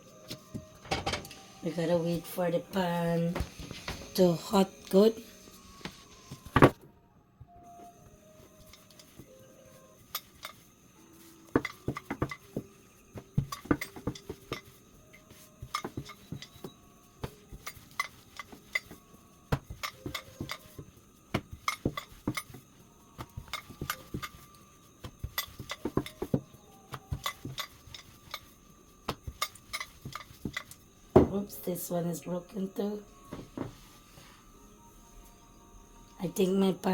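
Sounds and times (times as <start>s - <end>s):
rolling pin clattering on board: 11.5s - 22.6s, 23.2s - 28.5s.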